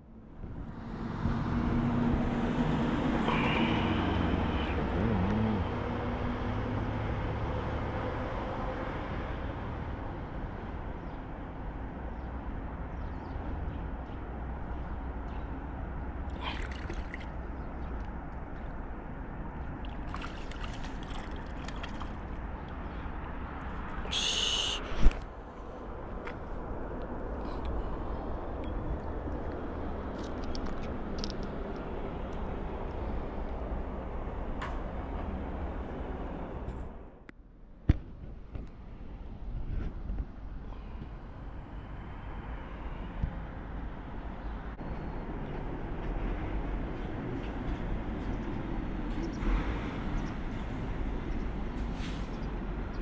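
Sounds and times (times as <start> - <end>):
outdoor rushing noise: 23.1 - 28.6.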